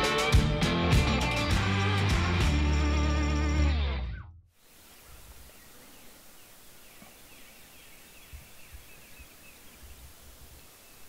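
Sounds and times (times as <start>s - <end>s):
songbirds chirping: 4.6s - 11.0s
steady hiss: 4.6s - 11.0s.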